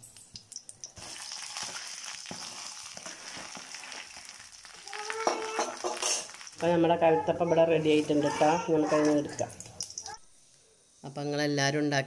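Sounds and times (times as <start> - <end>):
batter sizzling in hot oil: 0.0 - 7.0.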